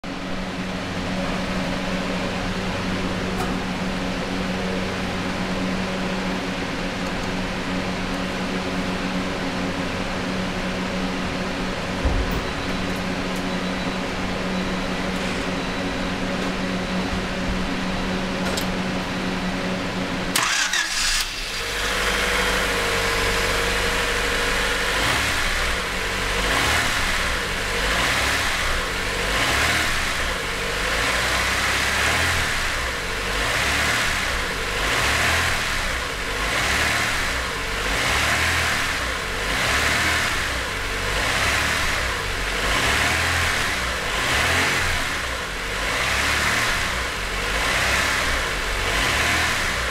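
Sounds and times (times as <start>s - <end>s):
car engine running: 0.0s - 49.9s
car engine cranking and starting: 20.2s - 49.9s.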